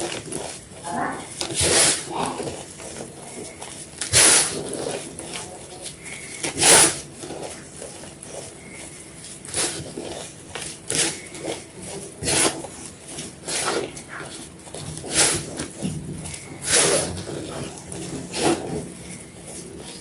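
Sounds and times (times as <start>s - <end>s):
chalk being crunched: 0.0s - 20.0s.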